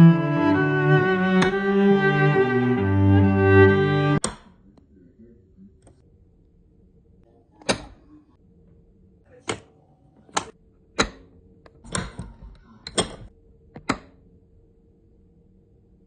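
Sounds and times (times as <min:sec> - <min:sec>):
sharp clicks and knocks: 0:09.4 - 0:14.2.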